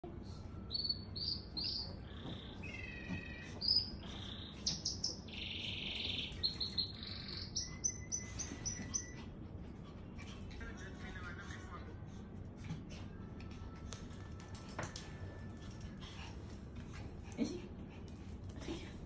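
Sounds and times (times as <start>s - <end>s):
bird singing chirps and whistles: 0.7s - 9.2s
buzzy bird trill: 0.7s - 9.2s.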